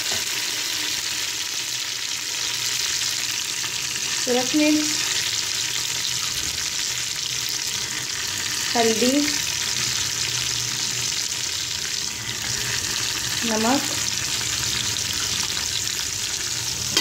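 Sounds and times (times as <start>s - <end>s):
vegetables frying in hot oil: 0.0s - 17.0s.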